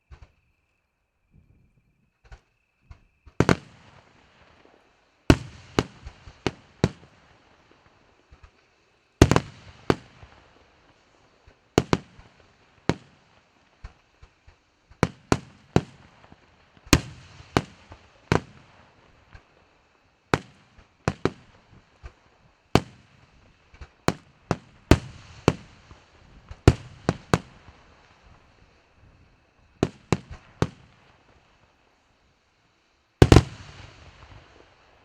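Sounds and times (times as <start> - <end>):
fireworks bangs with echo: 3.3 - 8.5, 9.2 - 14.0, 14.9 - 19.7, 20.3 - 31.4, 33.2 - 35.0.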